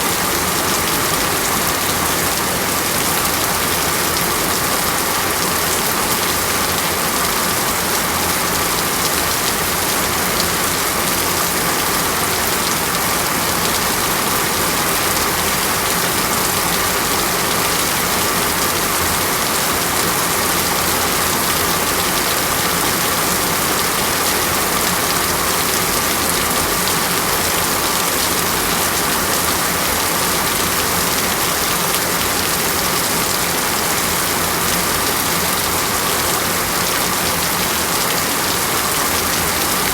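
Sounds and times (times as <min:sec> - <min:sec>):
rain on foliage: 0:00.0 - 0:39.9.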